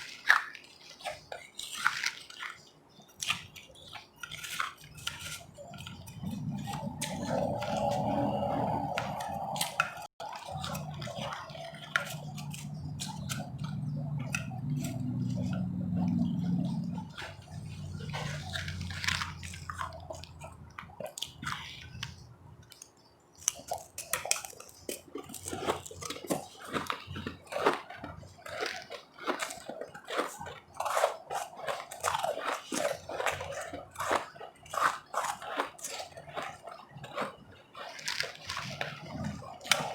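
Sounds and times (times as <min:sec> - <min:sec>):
ice crunching between teeth: 0:00.0 - 0:39.9
wet chewing: 0:00.0 - 0:39.9.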